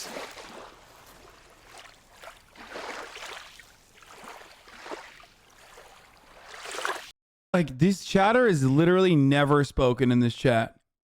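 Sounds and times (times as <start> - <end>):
small waves lapping on shore: 0.0 - 7.1.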